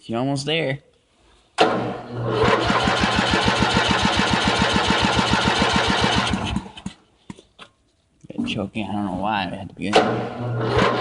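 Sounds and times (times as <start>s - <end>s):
generator engine pulsing: 1.6s - 7.0s, 9.9s - 11.0s.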